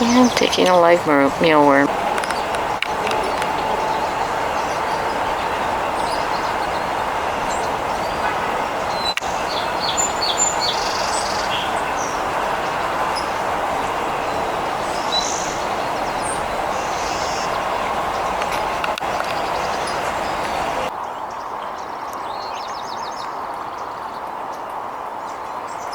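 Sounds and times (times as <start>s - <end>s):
high bird chirps: 0.0s - 13.4s
distant traffic roar: 0.0s - 25.9s.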